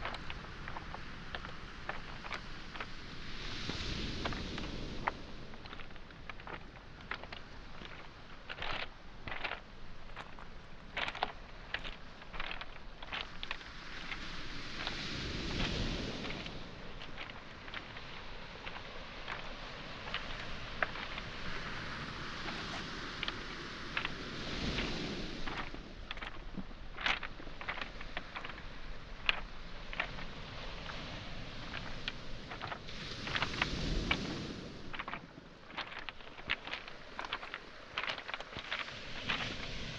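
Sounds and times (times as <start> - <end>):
footsteps on pebbles: 0.0 - 39.9
sea waves washing: 0.0 - 39.9
stones clicking together: 0.0 - 39.9.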